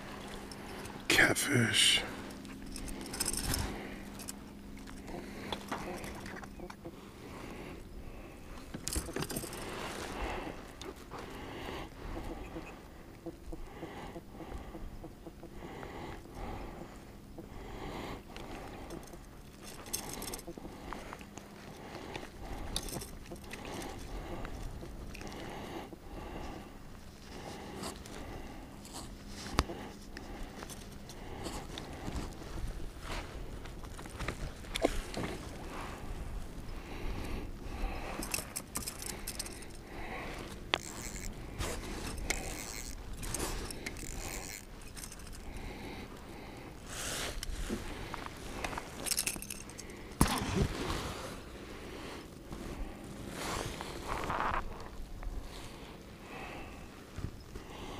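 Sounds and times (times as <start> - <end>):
gear clicking and rattling: 2.2 - 6.6, 8.6 - 9.8, 18.4 - 25.4, 28.8 - 32.4, 37.7 - 46.3, 47.4 - 50.4.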